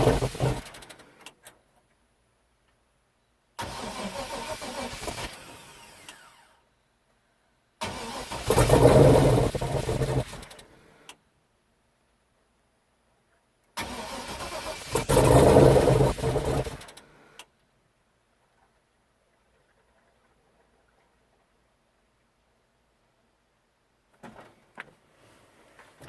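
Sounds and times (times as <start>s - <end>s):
car engine starting and dying: 0.0s - 1.2s, 3.6s - 6.5s, 7.8s - 10.8s, 13.8s - 17.2s.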